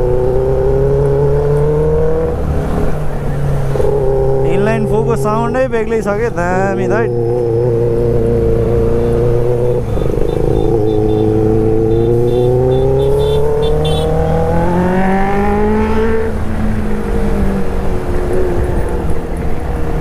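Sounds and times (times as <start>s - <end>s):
motorcycle engine revving: 0.0s - 18.8s.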